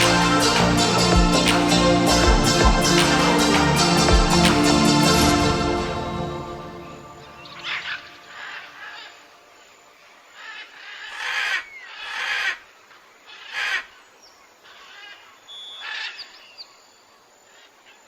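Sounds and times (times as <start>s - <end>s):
faint high chirps and whistles: 15.5s - 17.0s.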